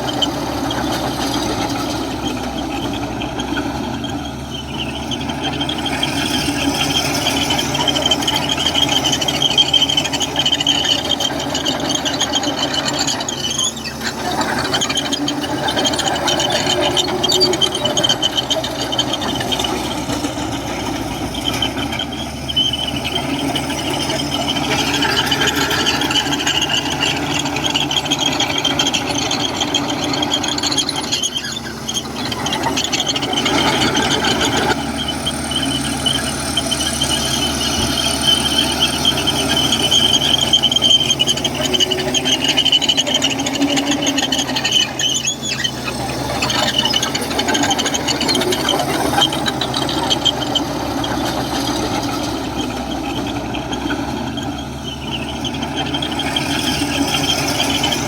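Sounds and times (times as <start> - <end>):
bulldozer diesel engine under load: 0.0 - 58.0
high-pitched squeal: 0.0 - 58.0.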